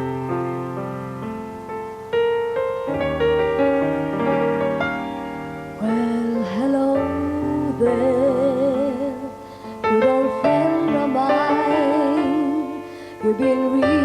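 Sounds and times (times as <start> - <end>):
piano notes: 0.0 - 14.0
person singing: 5.8 - 14.0.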